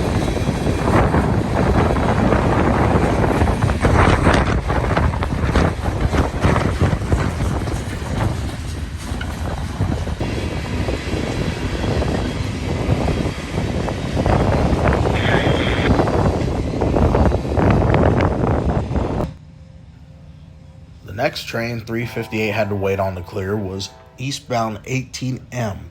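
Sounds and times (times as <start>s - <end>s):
wind buffeting microphone: 0.0s - 19.4s
freight train rumbling past: 0.0s - 25.9s.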